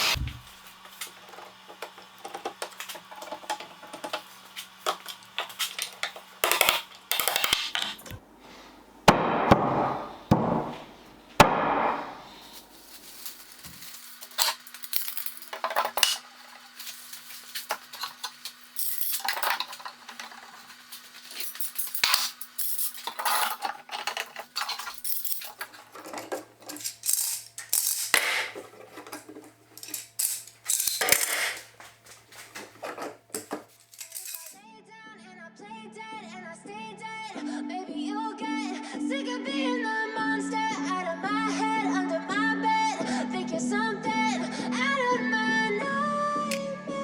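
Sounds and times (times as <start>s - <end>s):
tools and parts clattering: 0.0s - 8.2s, 9.8s - 34.6s.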